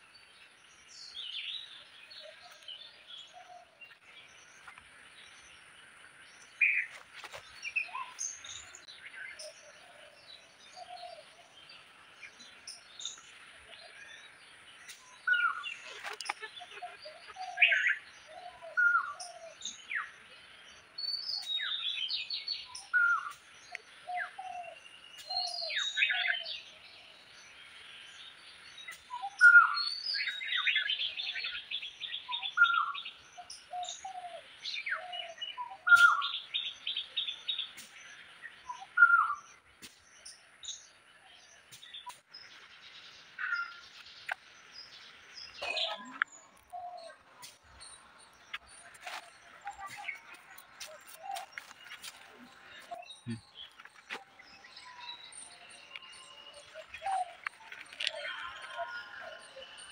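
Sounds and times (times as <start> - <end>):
birds chirping and whistling: 0.1 - 59.9.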